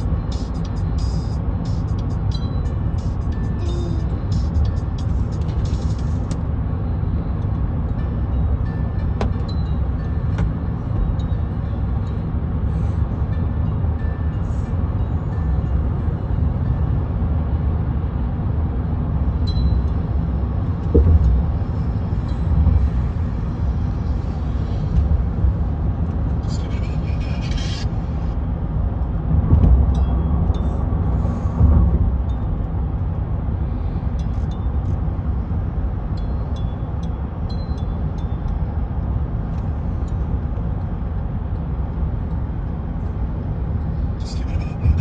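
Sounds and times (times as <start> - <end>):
car interior road rumble: 0.0 - 45.0
car bump: 9.2 - 9.5.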